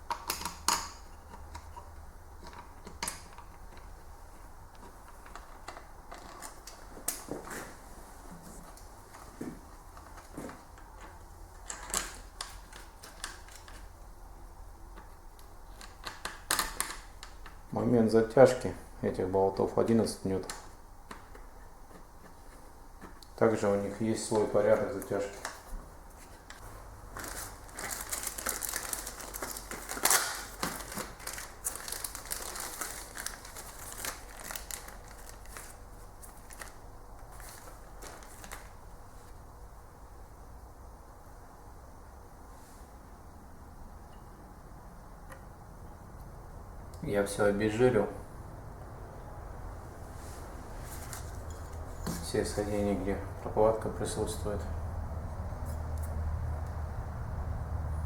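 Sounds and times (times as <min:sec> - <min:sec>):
tools and parts clicking and rattling: 0:00.0 - 0:04.0, 0:04.7 - 0:07.3, 0:10.0 - 0:13.9, 0:51.0 - 0:52.6.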